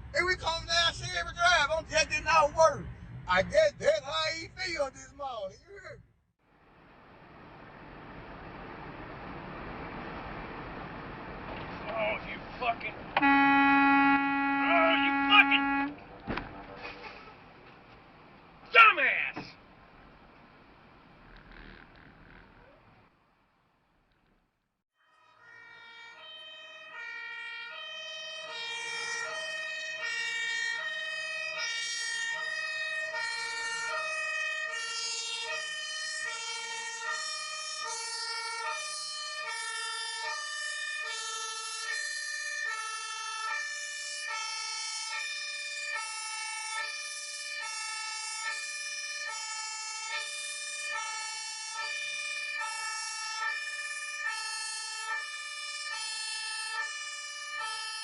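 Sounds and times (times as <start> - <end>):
two-tone emergency siren: 13.2 - 16.0, 25.0 - 58.0.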